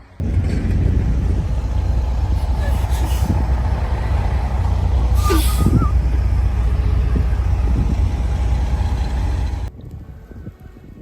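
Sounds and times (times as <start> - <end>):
vehicle engine rumbling: 0.0 - 10.6.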